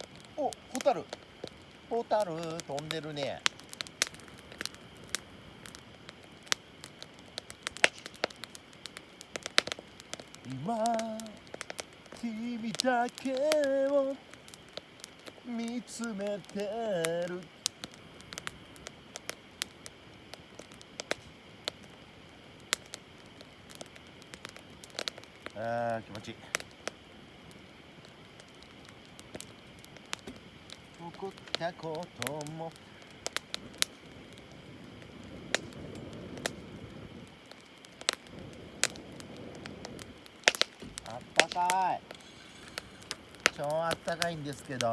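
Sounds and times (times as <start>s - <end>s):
campfire crackling: 0.0s - 44.9s.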